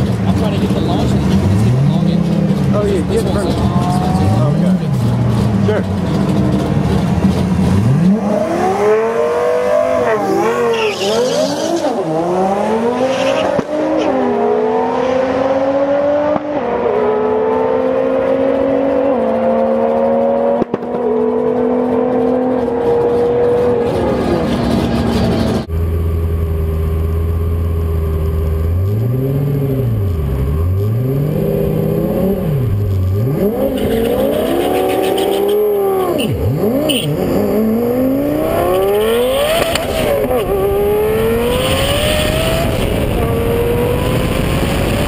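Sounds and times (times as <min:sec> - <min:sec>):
sports car engine revving: 0:26.4 - 0:45.0
car accelerating through gears: 0:28.8 - 0:45.0.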